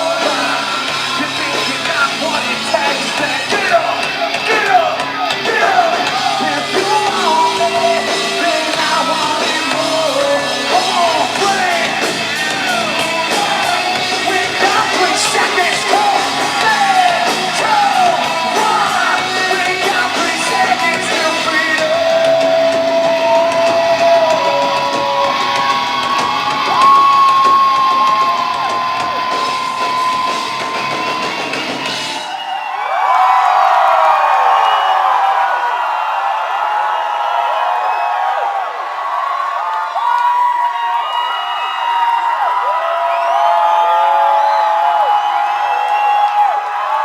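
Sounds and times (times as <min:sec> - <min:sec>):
sung and yelled vocals: 0:00.0 - 0:31.2
rock band playing live: 0:00.0 - 0:32.5.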